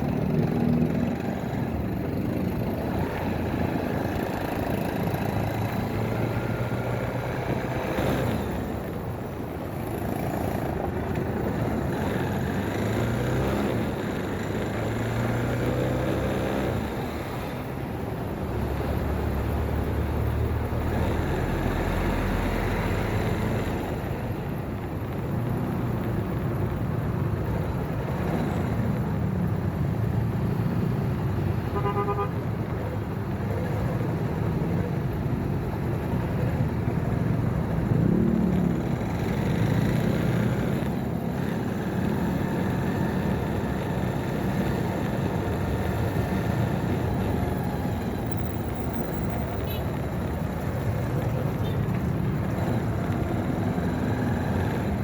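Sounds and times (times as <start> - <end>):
motorcycle engine revving: 0.0 - 9.1, 9.8 - 17.7, 36.0 - 55.0
road and wind noise: 0.0 - 55.0
horn tooting: 31.6 - 32.4.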